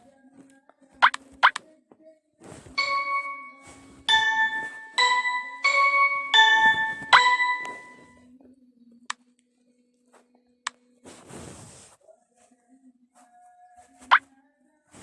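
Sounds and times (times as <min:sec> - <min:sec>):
bell-like tuned percussion tune: 0:02.8 - 0:08.1.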